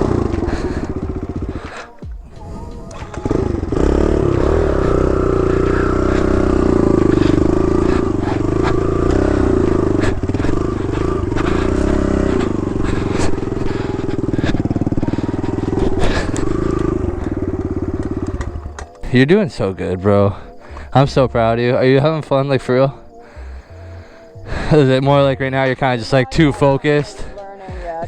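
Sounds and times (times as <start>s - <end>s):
dirt bike engine running: 0.0s - 28.0s
sharp clicks and knocks: 18.0s - 19.0s.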